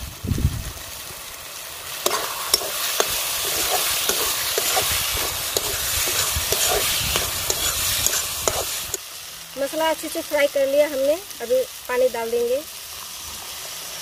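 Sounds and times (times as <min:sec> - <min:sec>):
paste sizzling in oil: 0:00.8 - 0:14.0
spatula scraping pan: 0:02.0 - 0:09.0.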